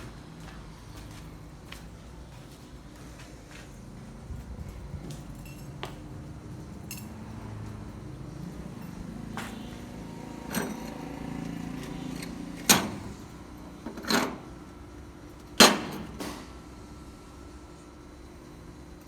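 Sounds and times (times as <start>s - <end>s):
low machine hum: 0.0s - 19.0s
metal knocking and clanking: 10.3s - 14.6s, 15.5s - 16.5s.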